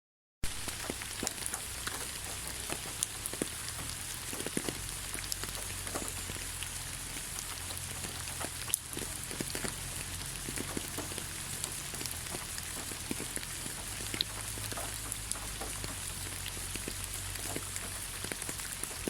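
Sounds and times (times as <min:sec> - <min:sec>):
rain falling on ground: 0:00.4 - 0:19.0
raindrops striking close by: 0:00.4 - 0:19.0.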